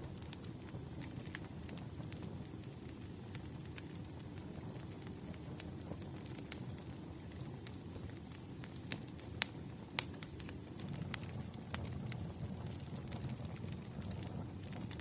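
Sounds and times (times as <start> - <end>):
firewood crackling and popping: 0.0 - 15.0
low rustle of flames: 0.0 - 15.0.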